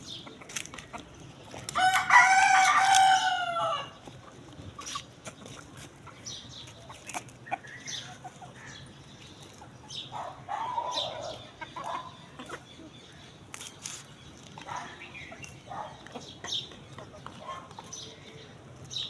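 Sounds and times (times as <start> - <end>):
rooster crowing: 1.8 - 4.0.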